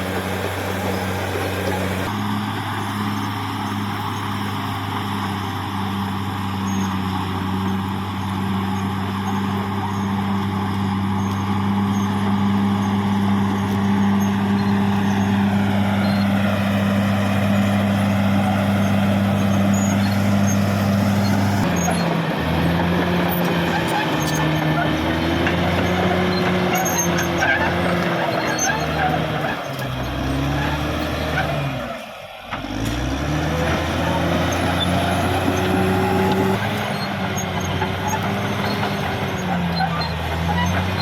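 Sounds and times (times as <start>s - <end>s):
bulldozer diesel engine: 0.0s - 41.0s.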